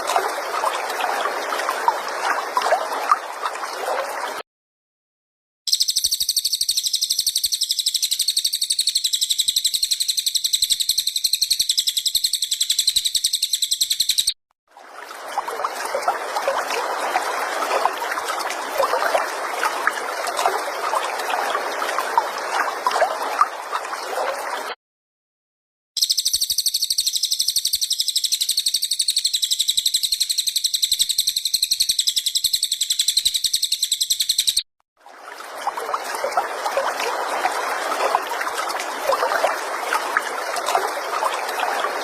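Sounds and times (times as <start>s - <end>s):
songbird trilling: 5.7s - 14.3s, 26.0s - 34.6s.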